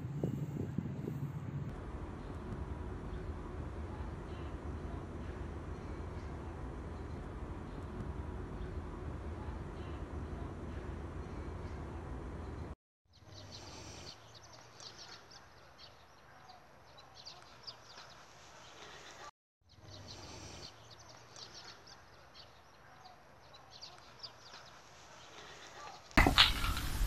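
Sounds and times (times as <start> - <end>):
low background hum: 0.0 - 12.8
small birds chirping: 12.4 - 27.0.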